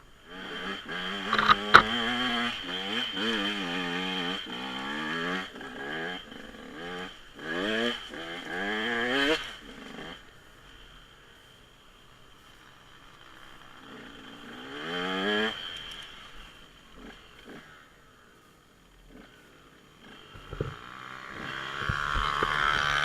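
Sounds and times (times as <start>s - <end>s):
dirt bike engine revving: 0.0s - 11.6s, 12.4s - 17.9s, 19.1s - 23.0s
sharp clicks: 1.2s - 2.0s.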